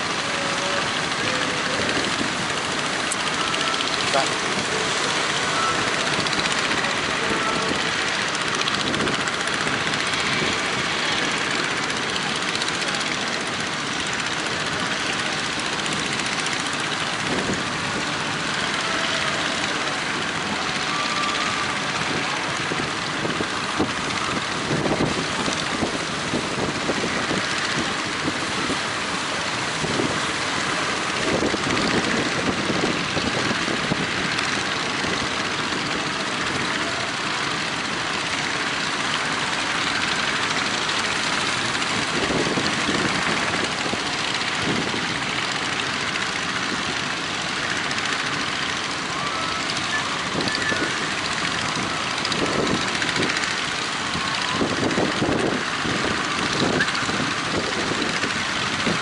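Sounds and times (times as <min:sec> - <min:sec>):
boat motors running: 0:00.0 - 0:59.0
rush of noise: 0:00.0 - 0:59.0
wind gusts on microphone: 0:00.8 - 0:49.0, 0:49.6 - 0:59.0.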